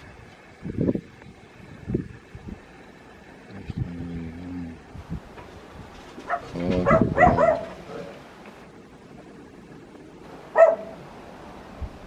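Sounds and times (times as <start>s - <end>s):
faint wind noise: 0.0s - 12.0s
dog barking: 6.2s - 8.1s, 10.5s - 11.0s.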